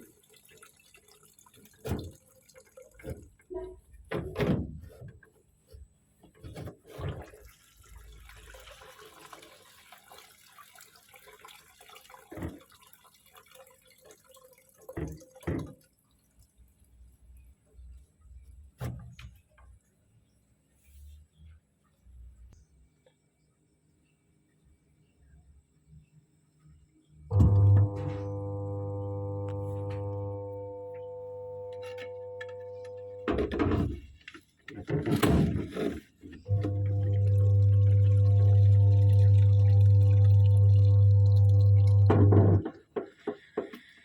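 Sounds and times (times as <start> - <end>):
water dripping and splashing: 0.0 - 3.5, 7.2 - 17.2, 36.4 - 42.3
trickle of running water: 0.0 - 3.9, 7.2 - 18.5, 36.0 - 44.0.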